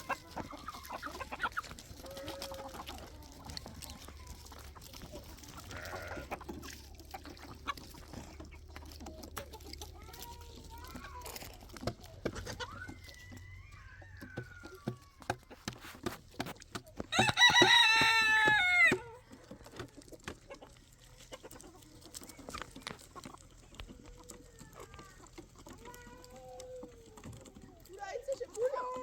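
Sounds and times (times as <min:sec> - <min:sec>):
rooster crowing: 0:17.1 - 0:19.0.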